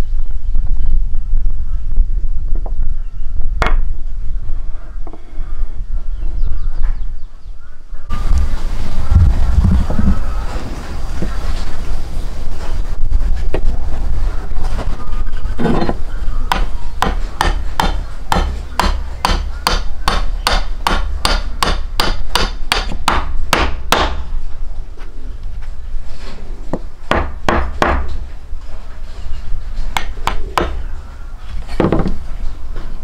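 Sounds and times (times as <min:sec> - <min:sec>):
low rumble: 0:08.0 - 0:16.5.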